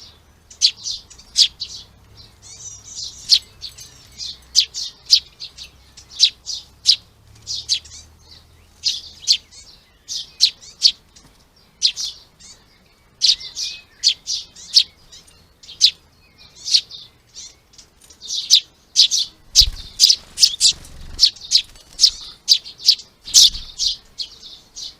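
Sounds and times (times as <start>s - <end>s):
songbirds chirping: 0.0s - 24.9s.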